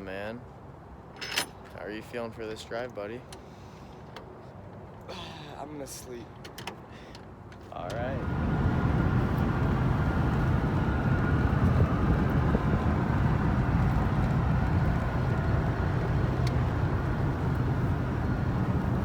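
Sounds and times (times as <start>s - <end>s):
road and engine rumble: 0.0s - 19.0s.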